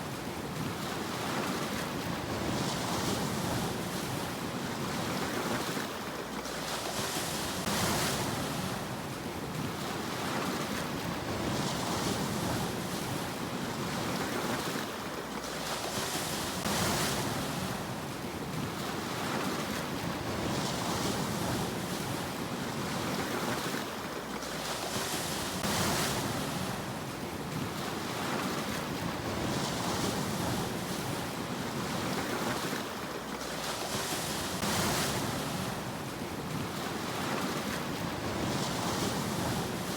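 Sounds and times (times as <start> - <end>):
sea waves washing in: 0.0 - 39.9.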